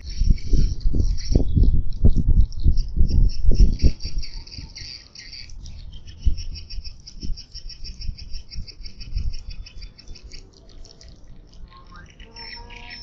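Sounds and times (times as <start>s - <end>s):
swiftlets twittering chirps: 0.0s - 13.0s.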